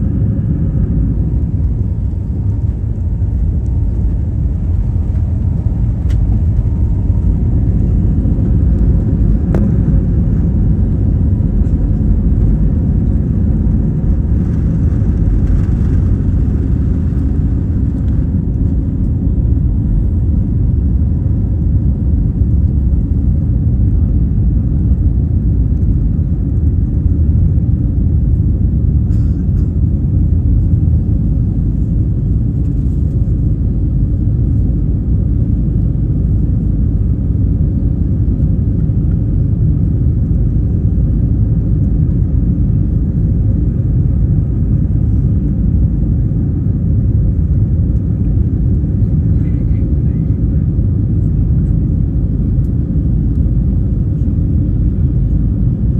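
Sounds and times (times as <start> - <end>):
jet engine cabin rumble: 0.0 - 55.9.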